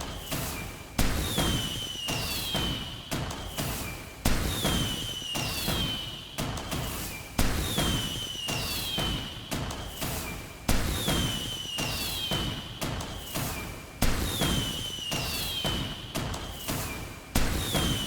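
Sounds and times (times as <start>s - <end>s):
firework pops and crackles: 0.0s - 18.0s
firework whistles sliding down: 0.1s - 2.9s, 3.5s - 6.1s, 7.6s - 9.3s, 10.0s - 12.6s, 13.4s - 18.0s
fireworks bangs: 17.4s - 18.0s.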